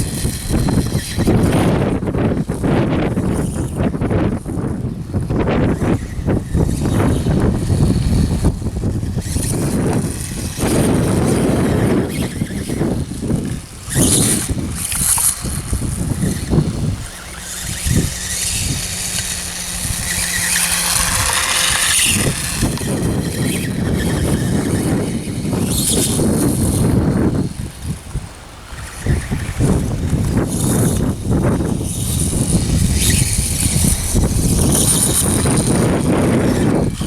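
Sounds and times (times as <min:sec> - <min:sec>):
electric motor whining: 0:00.0 - 0:37.0
wind on microphone: 0:00.0 - 0:37.0.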